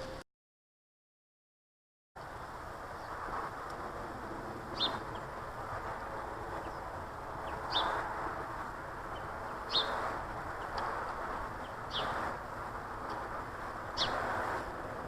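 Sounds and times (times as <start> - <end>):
birds chirping: 4.7 - 14.3.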